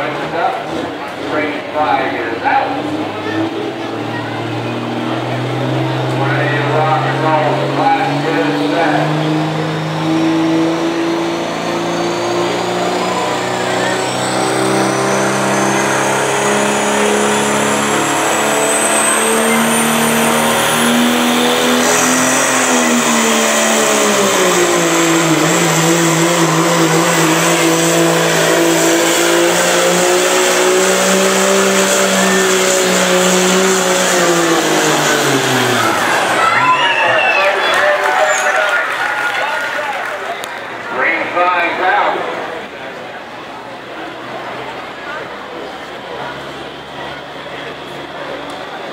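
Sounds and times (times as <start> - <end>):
diesel engine at high revs: 0.0 - 48.9
turbo whistle: 36.4 - 38.8.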